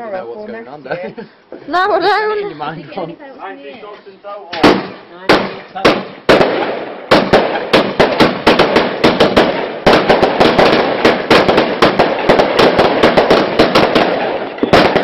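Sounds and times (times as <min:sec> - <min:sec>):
firework barrage bangs: 0:04.6 - 0:15.0.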